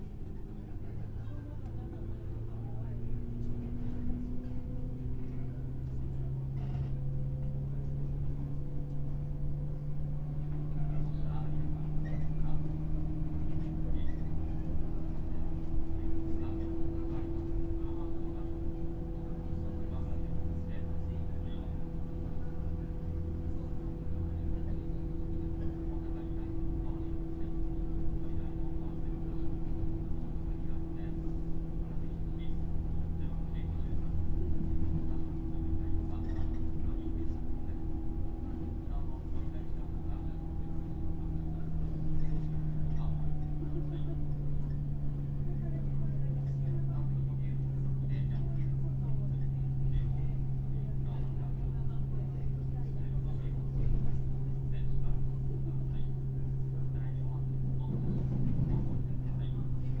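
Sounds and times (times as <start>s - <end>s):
faint passenger voices: 0.0s - 60.0s
train low rumble: 0.0s - 60.0s
train wheels rumbling on rails: 56.2s - 60.0s.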